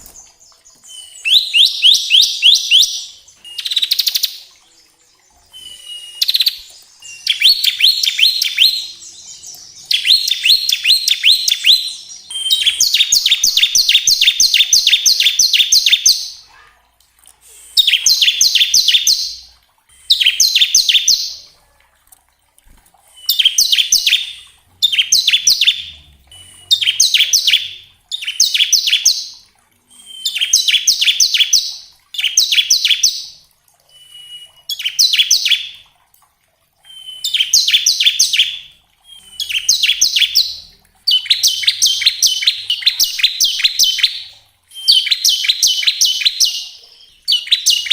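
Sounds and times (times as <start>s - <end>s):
bird song of rapid high chips: 0.0s - 16.6s, 17.6s - 21.5s, 23.0s - 35.8s, 36.8s - 47.9s
thin bird whistle: 5.5s - 8.8s, 29.9s - 33.1s, 33.9s - 35.7s, 36.8s - 40.5s, 41.1s - 47.9s.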